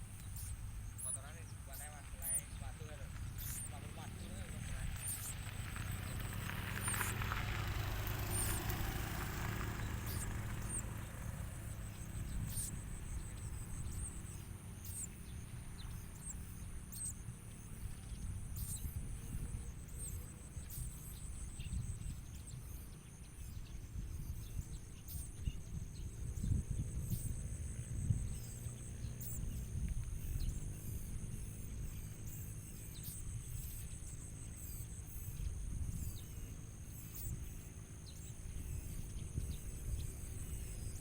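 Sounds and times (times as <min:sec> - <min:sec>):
songbirds chirping: 0:00.0 - 0:41.0.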